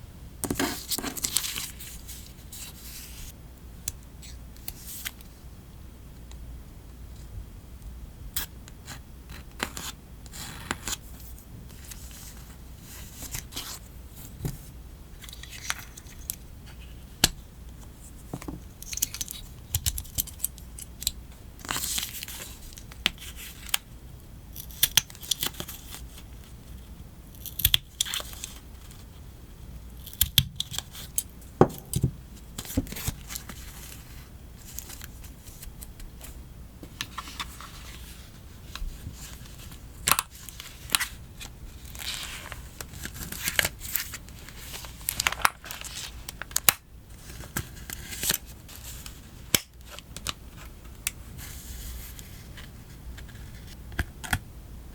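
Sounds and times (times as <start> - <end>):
paper crinkling: 41.8 - 49.1.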